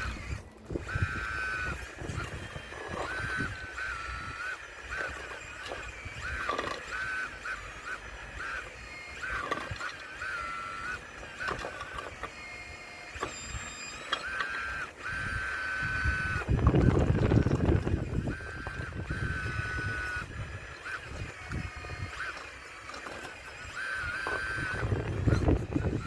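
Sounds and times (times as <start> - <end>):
electric motor whining: 0.0 - 26.0
stones knocking and scraping: 9.2 - 10.0, 11.3 - 12.4, 20.8 - 25.6.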